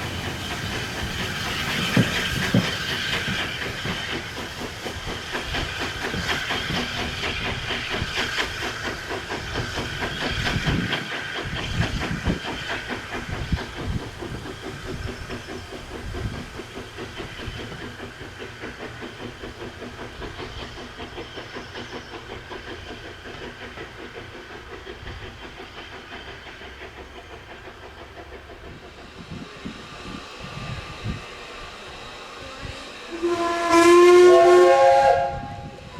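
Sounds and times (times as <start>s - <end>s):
hiss of steam: 0.0s - 35.9s
steam locomotive exhaust beats: 0.0s - 35.9s.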